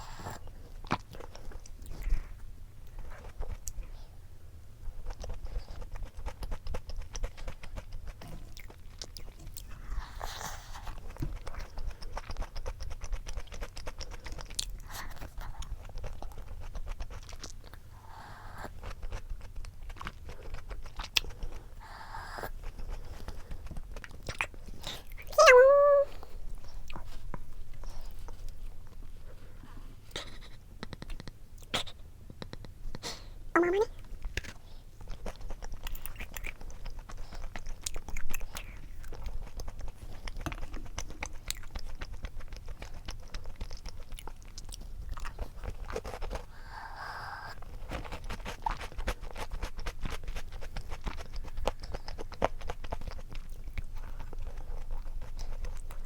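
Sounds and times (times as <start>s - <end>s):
chewing crunchy snack: 0.0s - 4.1s, 4.8s - 32.8s, 33.8s - 56.0s
short wavering vocal sound: 33.6s - 33.9s.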